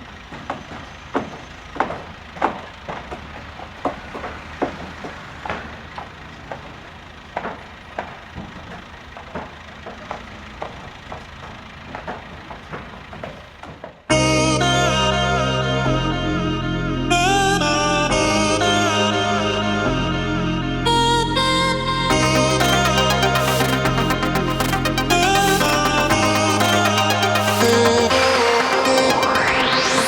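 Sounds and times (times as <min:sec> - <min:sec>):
knocks and clanks: 0:00.0 - 0:14.1
low engine rumble: 0:00.0 - 0:30.0.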